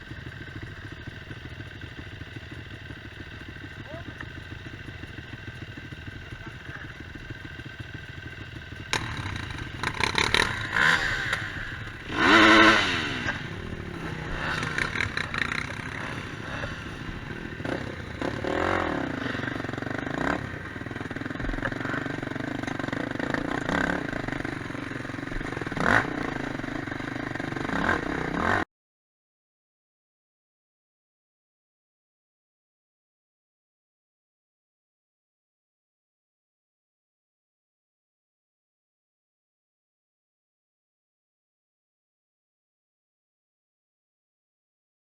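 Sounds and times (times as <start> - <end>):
quad bike engines revving: 0.0 - 28.6.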